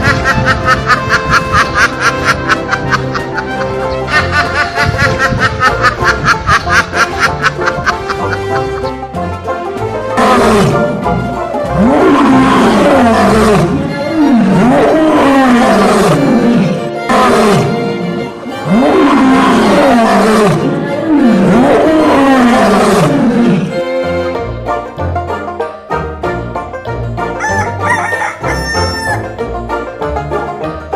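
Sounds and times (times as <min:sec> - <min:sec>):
background music: 0:00.0 - 0:30.9
big cat roaring: 0:10.2 - 0:11.0, 0:11.6 - 0:17.9, 0:18.6 - 0:23.7.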